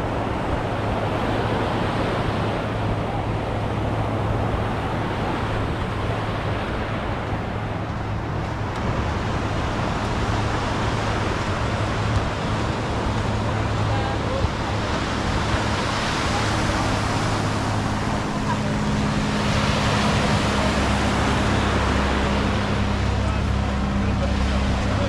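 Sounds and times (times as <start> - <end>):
passing road traffic: 0.0 - 25.0
surf washing on beach: 0.0 - 25.0.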